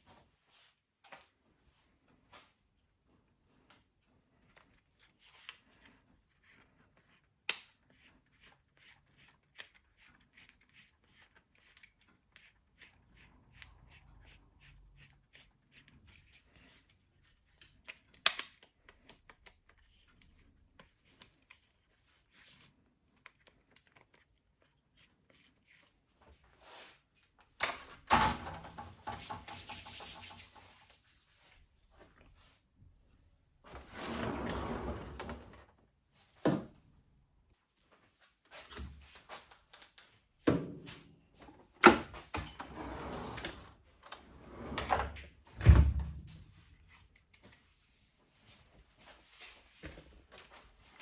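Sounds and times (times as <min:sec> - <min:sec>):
rattling scrape with knock: 0:28.5 - 0:30.8.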